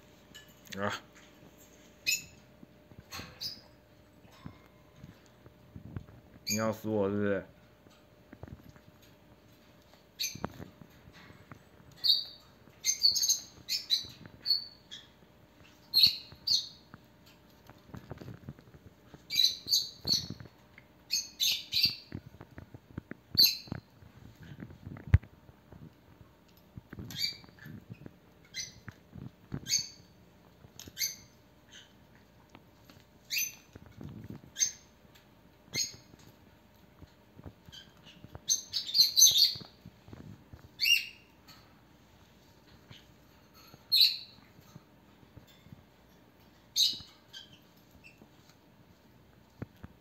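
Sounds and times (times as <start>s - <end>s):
parrot chirps and squawks: 2.0s - 2.4s, 12.0s - 16.8s, 19.3s - 20.4s, 21.1s - 22.1s, 27.1s - 27.7s, 29.6s - 30.2s, 30.8s - 32.0s, 33.3s - 33.7s, 34.5s - 34.9s, 35.7s - 36.1s, 37.7s - 39.7s, 40.8s - 41.3s, 42.9s - 44.4s, 46.7s - 48.2s.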